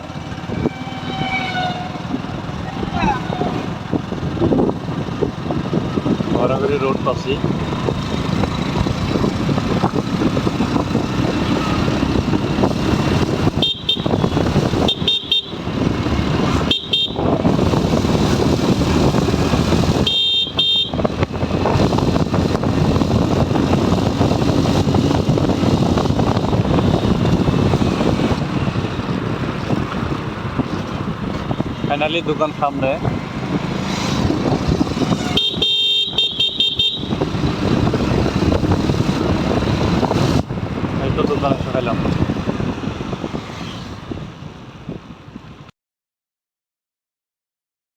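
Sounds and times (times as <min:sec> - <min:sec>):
wind rushing: 0:00.0 - 0:20.1, 0:20.9 - 0:35.4, 0:37.0 - 0:45.6
motorcycle engine: 0:00.0 - 0:44.1
horn tooting: 0:00.1 - 0:03.8, 0:13.4 - 0:15.9, 0:16.5 - 0:17.6, 0:19.9 - 0:21.2, 0:34.8 - 0:37.5.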